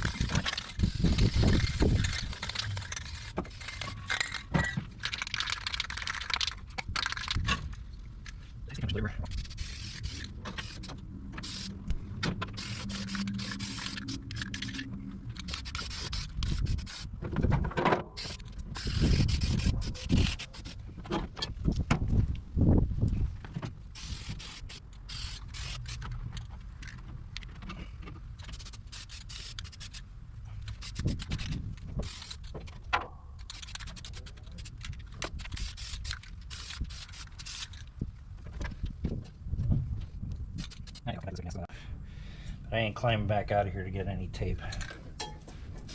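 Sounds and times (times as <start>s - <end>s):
rubbing and scraping: 0.0s - 21.7s, 23.6s - 38.7s
spray can hissing: 9.3s - 11.8s, 12.5s - 14.8s, 15.4s - 17.1s, 18.2s - 20.8s, 24.0s - 26.0s, 28.5s - 30.0s, 35.5s - 37.7s.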